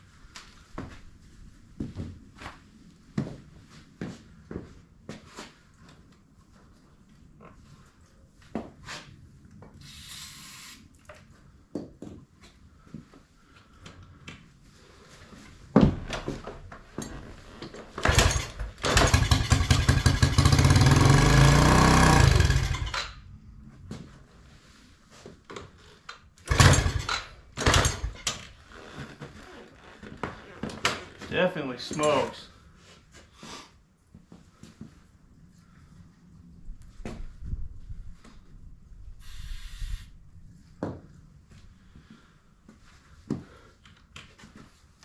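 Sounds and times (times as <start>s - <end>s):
aerosol spray hiss: 9.8s - 10.8s, 39.2s - 40.1s
small engine cranking and running: 9.8s - 10.8s, 18.0s - 23.2s, 26.5s - 28.4s, 39.2s - 40.1s
short loud bursts: 39.2s - 40.2s.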